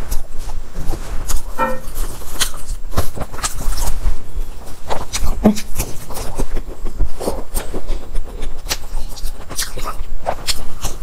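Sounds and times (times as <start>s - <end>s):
mouth chewing wet clicks: 4.9s - 11.0s.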